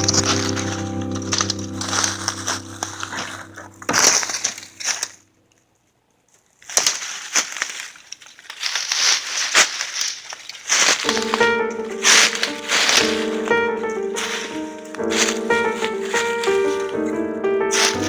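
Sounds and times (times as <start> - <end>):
dry wood and brush snapping: 0.0 - 5.2, 6.3 - 17.2, 17.8 - 18.0.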